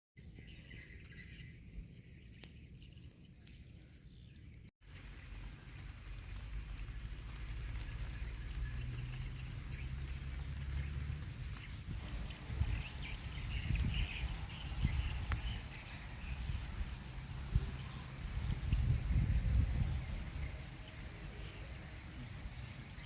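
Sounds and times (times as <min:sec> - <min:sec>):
rain falling: 0:04.8 - 0:23.0
low rumble: 0:05.0 - 0:23.0.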